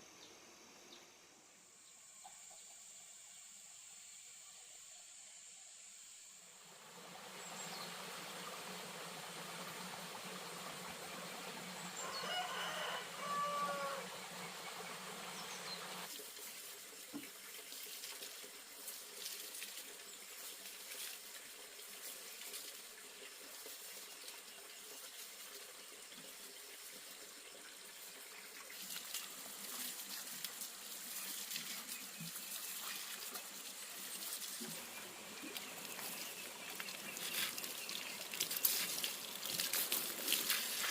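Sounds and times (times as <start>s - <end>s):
water splashing and trickling: 6.6s - 40.9s
rooster crowing: 12.0s - 14.2s.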